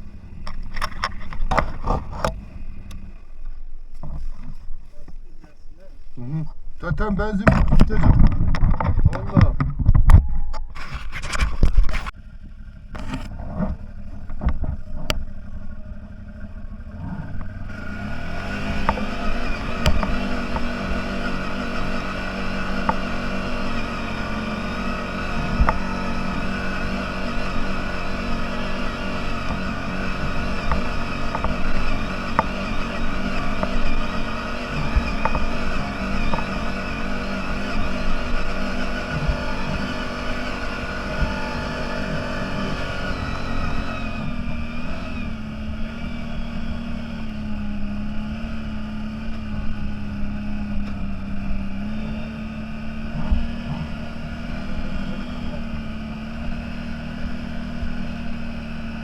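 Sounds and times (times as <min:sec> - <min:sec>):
low rumble: 0:00.0 - 0:21.1
off-road vehicle engine running: 0:00.0 - 0:59.0.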